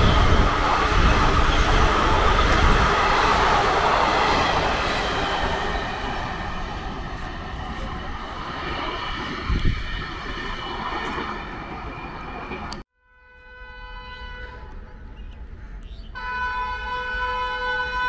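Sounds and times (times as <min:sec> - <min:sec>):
train wheels rumbling on track: 0:00.0 - 0:12.8.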